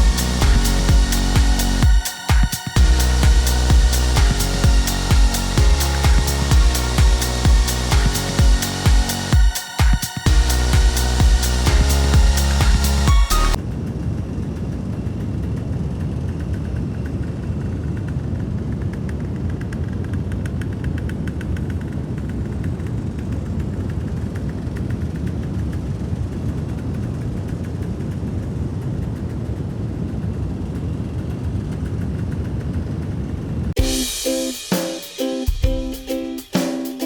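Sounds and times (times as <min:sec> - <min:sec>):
two-stroke engine idling: 0:00.0 - 0:13.6.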